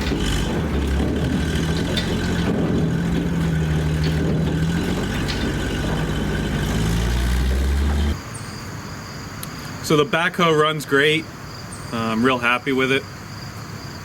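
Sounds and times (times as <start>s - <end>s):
diesel engine running and stopping: 0.0s - 8.2s.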